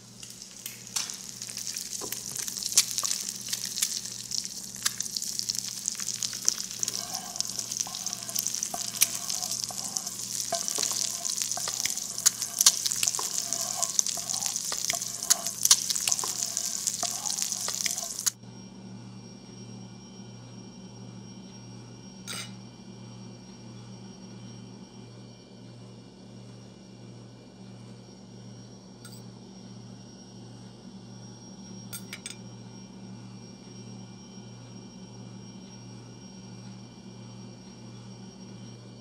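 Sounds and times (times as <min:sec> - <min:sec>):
knife clinking on plate: 0:32.0 - 0:32.4.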